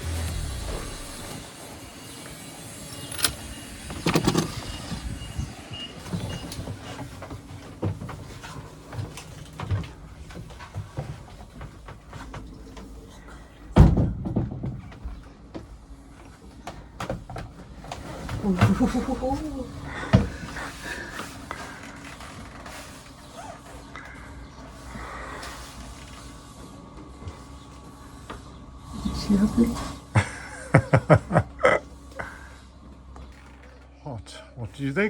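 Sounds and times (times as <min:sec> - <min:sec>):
knocks and bumps of people moving: 0:03.9 - 0:23.6.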